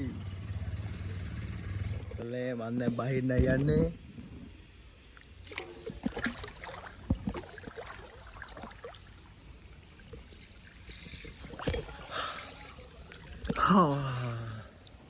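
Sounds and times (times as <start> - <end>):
water sloshing and splashing: 5.0 - 15.0
loud splash: 5.4 - 9.3, 10.3 - 14.2.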